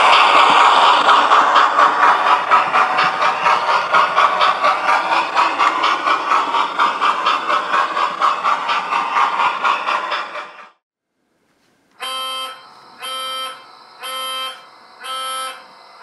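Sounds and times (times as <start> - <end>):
model locomotive engine sound: 0.0 - 10.8, 12.0 - 16.0.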